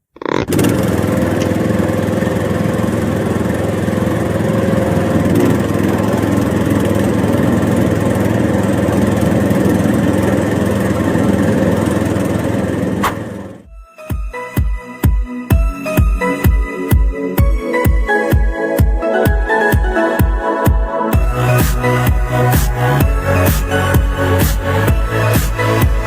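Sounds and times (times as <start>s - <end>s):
small engine running: 0.2s - 13.7s, 21.2s - 26.0s.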